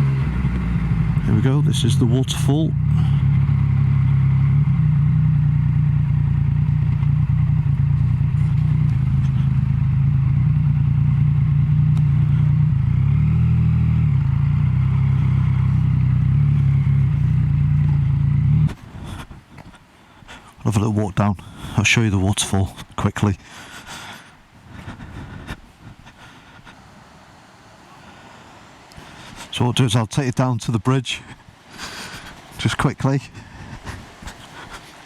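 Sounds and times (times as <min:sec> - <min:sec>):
motorcycle engine running: 0:00.0 - 0:19.5.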